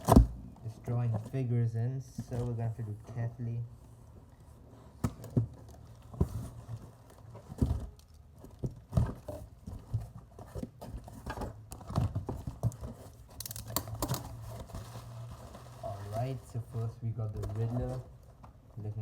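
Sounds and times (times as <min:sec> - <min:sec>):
cardboard box knocks and rustling: 0:00.0 - 0:00.4, 0:05.0 - 0:13.1.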